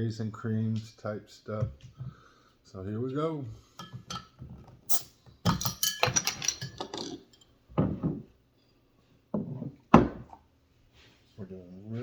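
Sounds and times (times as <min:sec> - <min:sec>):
glass bottles and cups clinking: 0:03.8 - 0:07.6.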